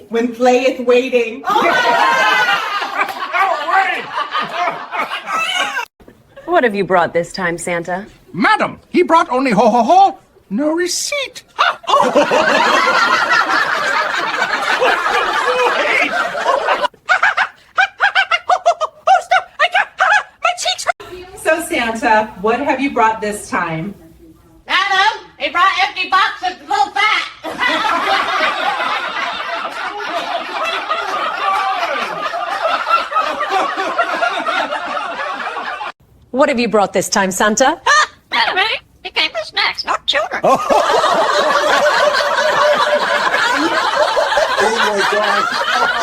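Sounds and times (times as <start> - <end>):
people laughing together: 1.4 - 5.9, 11.6 - 20.4, 27.4 - 36.0, 40.4 - 46.0
person laughing ha ha: 4.6 - 5.9.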